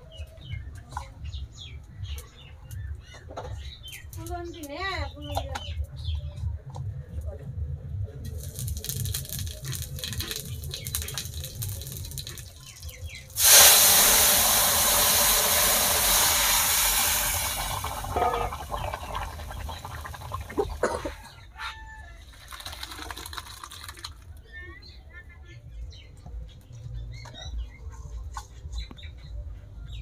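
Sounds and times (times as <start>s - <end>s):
food sizzling in hot oil: 8.3s - 20.9s.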